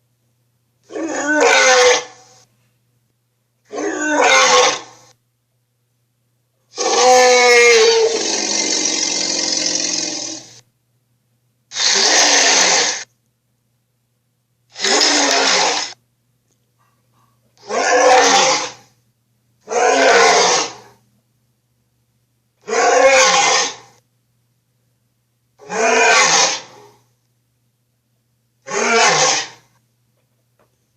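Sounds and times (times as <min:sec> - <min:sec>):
dinosaur roars: 0:06.7 - 0:10.6, 0:11.7 - 0:13.0, 0:14.8 - 0:16.0, 0:17.6 - 0:18.9, 0:19.7 - 0:20.9, 0:22.6 - 0:23.9, 0:25.6 - 0:27.0, 0:28.7 - 0:29.6.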